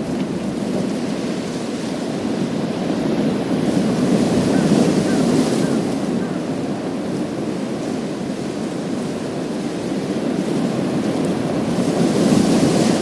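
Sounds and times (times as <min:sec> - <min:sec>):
waves washing over pebble beach: 0:07.1 - 0:13.0.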